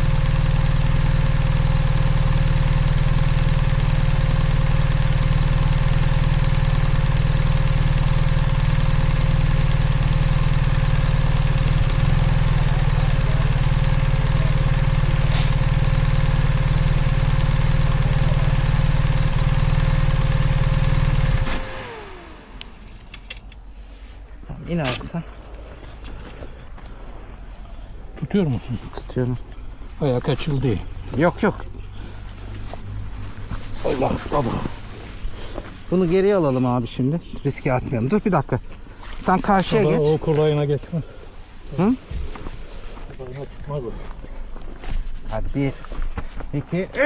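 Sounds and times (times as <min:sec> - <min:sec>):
motorcycle engine whining: 0:00.0 - 0:28.2, 0:30.6 - 0:35.9.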